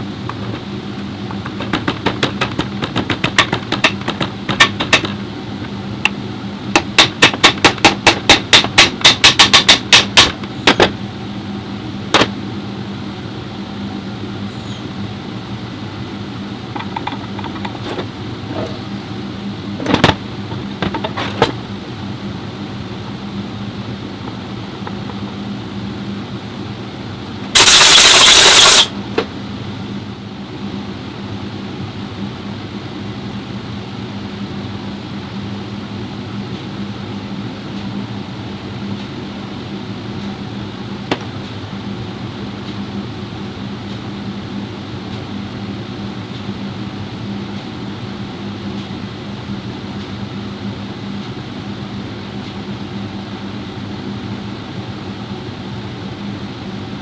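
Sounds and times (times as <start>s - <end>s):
machine hum: 0.0s - 30.2s
sharp clicks and knocks: 1.3s - 5.2s, 6.8s - 11.0s, 16.7s - 18.7s, 19.8s - 21.6s
loud hiss: 27.5s - 28.9s.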